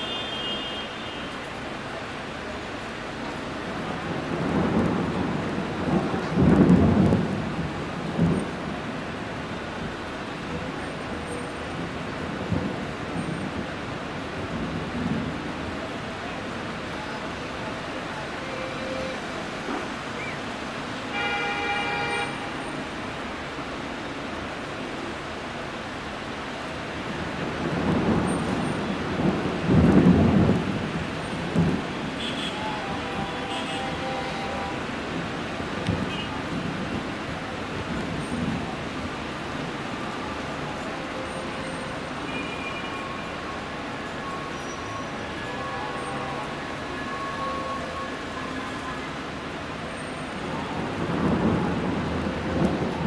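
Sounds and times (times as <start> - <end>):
steady rain: 0.0 - 53.0
low rumble of thunder: 3.8 - 9.2, 11.7 - 15.9, 27.0 - 32.2, 35.0 - 40.7, 50.3 - 53.0.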